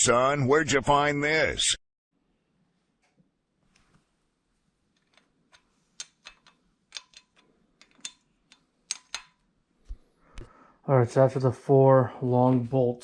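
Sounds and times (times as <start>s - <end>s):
metallic clicks of hand tools: 5.0s - 9.4s.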